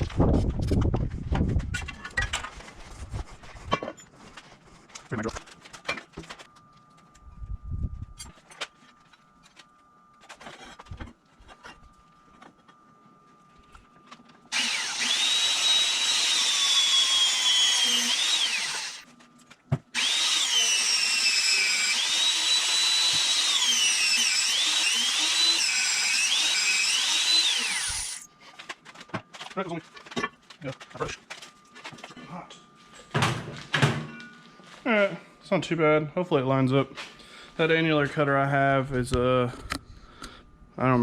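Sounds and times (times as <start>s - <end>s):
drill screeching through steel: 14.5s - 19.0s, 20.0s - 28.3s.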